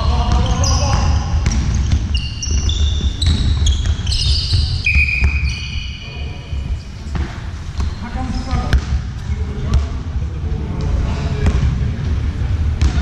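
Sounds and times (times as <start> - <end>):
basketball bouncing: 0.0 - 5.8, 7.0 - 9.9, 12.8 - 13.0
shoes squeaking on court floor: 0.0 - 8.8.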